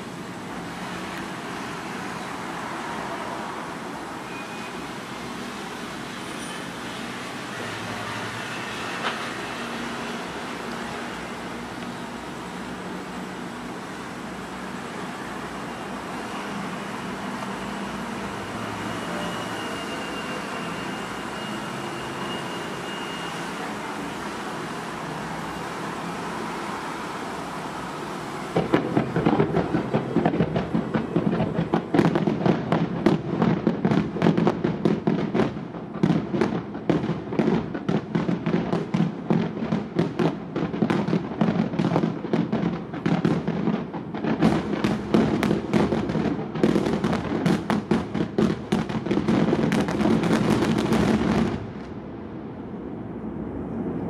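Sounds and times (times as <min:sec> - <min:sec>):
background noise hiss: 0:00.0 - 0:34.8
fireworks bangs: 0:00.0 - 0:52.4.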